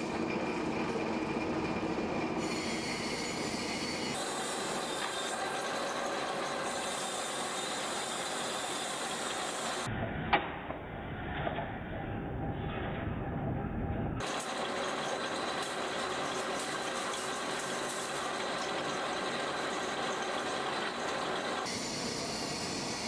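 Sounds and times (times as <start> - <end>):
metalworking machine squealing: 0.0 - 9.9, 14.2 - 22.8.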